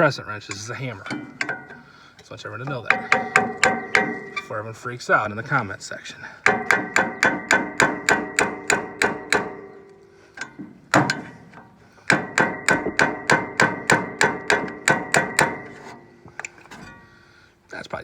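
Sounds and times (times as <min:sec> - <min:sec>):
hammer tapping chisel on metal: 0:00.5 - 0:01.8, 0:02.6 - 0:04.5, 0:06.4 - 0:16.9.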